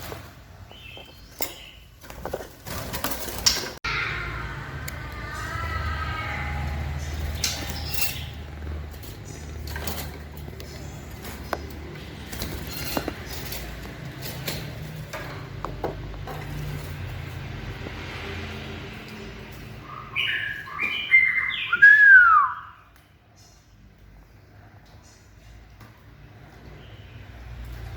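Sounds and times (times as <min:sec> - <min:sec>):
bird whistling: 0:20.1 - 0:22.9.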